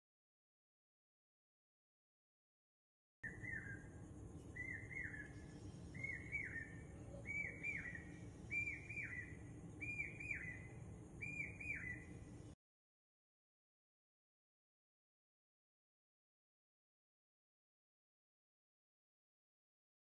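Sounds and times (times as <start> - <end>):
faint low hum: 3.2 - 12.6
bird-like chirping call: 4.6 - 12.1.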